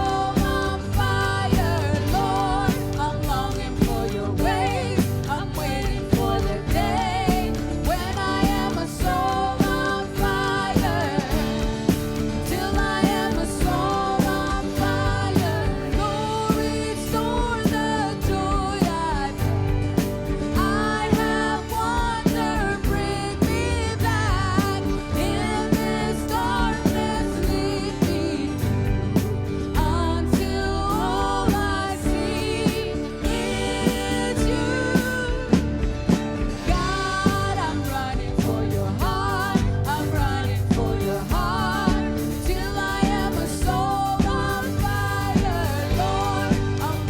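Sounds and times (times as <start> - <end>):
bass: 0.0 - 47.0
person singing: 0.0 - 47.0
steady drum beat: 0.0 - 47.0.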